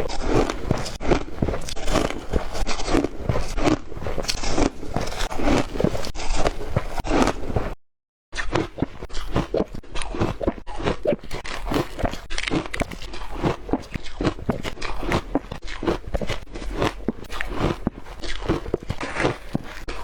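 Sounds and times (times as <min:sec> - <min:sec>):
ice crunching while chewed: 0:00.0 - 0:07.8, 0:08.4 - 0:20.0.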